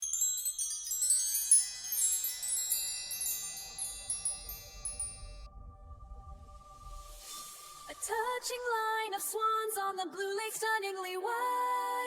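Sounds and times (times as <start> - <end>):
chimes ringing: 0.0 - 5.5.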